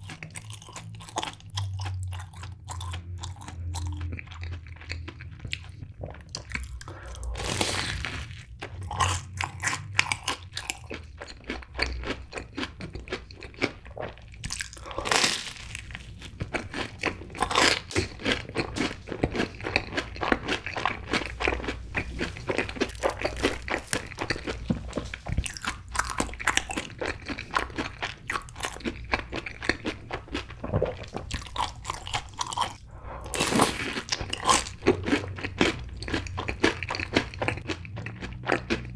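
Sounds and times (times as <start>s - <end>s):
crunchy chewing: 0.0s - 38.9s
crunchy bite: 14.5s - 16.0s.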